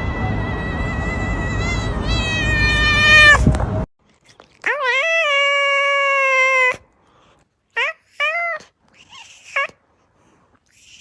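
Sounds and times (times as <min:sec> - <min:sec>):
cat meowing: 0:01.6 - 0:03.4.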